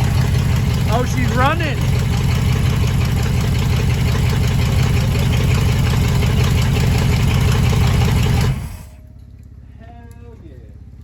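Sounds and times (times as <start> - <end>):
pickup truck engine idling: 0.0 - 11.0.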